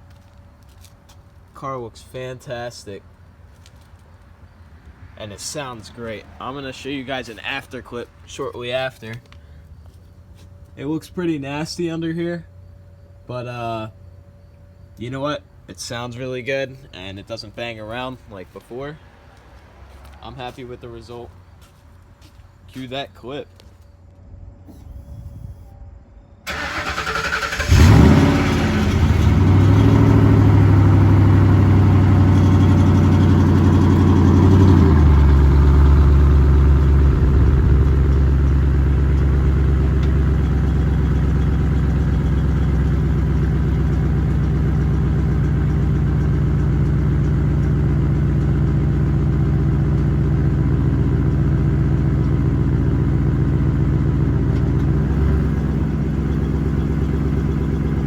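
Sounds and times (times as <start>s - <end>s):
engine cranking: 26.5s - 49.1s, 54.4s - 58.0s
car engine revving and idling: 26.5s - 58.0s.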